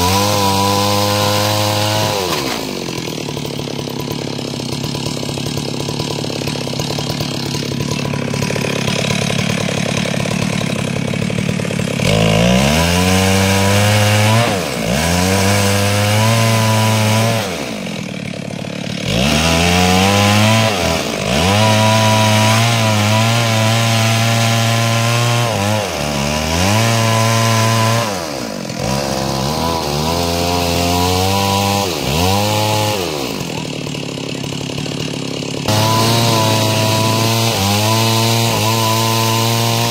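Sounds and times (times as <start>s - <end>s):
chainsaw cutting a log: 0.0s - 39.9s.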